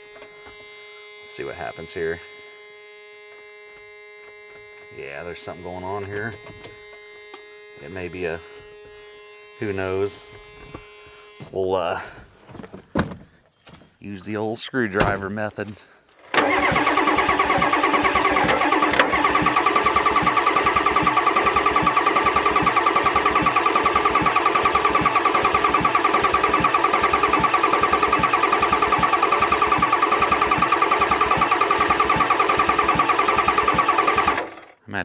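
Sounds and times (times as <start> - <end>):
starter motor cranking engine: 16.2 - 34.8.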